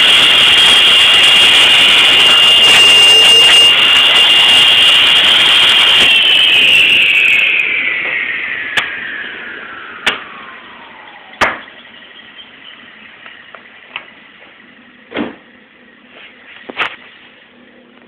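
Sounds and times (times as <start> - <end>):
table saw winding down: 0.0 - 11.8.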